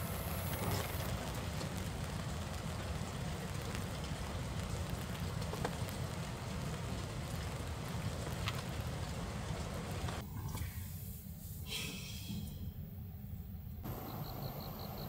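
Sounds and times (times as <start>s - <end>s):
raindrops ticking: 0.0s - 10.2s
rain hiss: 0.0s - 13.1s, 13.8s - 15.0s.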